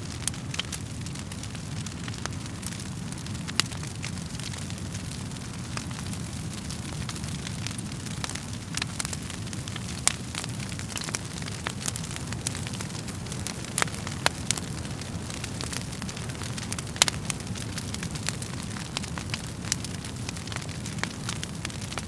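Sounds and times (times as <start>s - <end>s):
burning logs crackling and popping: 0.0s - 22.0s
low rumble of flames: 0.0s - 22.0s.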